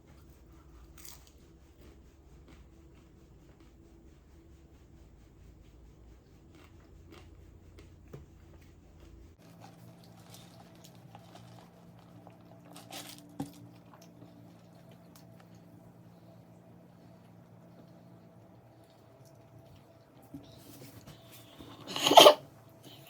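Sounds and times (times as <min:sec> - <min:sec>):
person chewing: 0:06.4 - 0:15.7.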